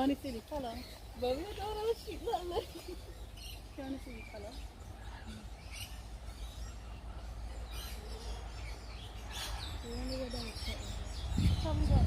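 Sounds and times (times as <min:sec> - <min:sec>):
birds chirping: 0:00.0 - 0:12.0
low rumble on microphone: 0:11.0 - 0:12.0.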